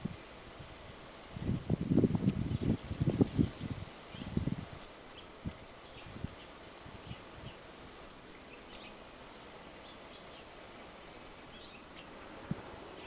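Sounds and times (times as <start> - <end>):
steady outdoor hiss: 0.0 - 13.0
faint bird chirps: 8.4 - 10.6, 11.2 - 13.0.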